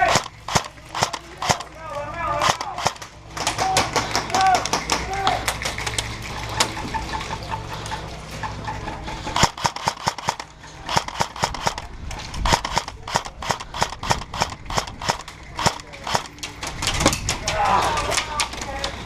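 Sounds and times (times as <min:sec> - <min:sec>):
airsoft guns firing: 0:00.0 - 0:06.0, 0:09.3 - 0:18.2.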